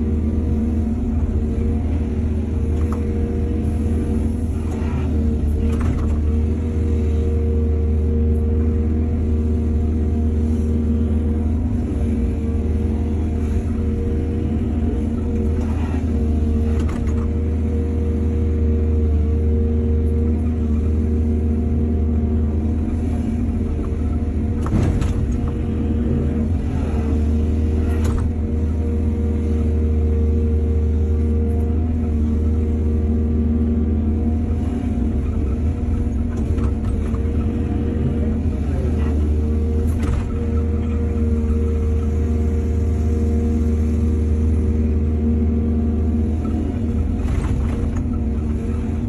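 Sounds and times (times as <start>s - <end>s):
diesel engine rumbling: 0.0s - 49.0s.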